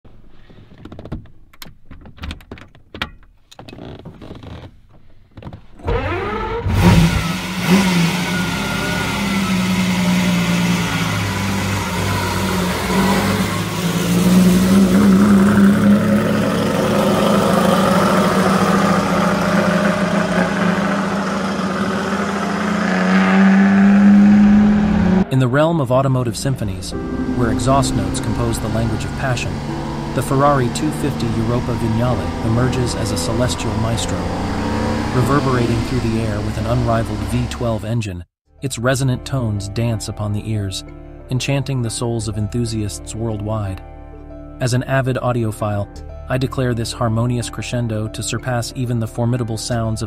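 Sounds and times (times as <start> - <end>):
car engine starting and revving: 5.8 - 38.0.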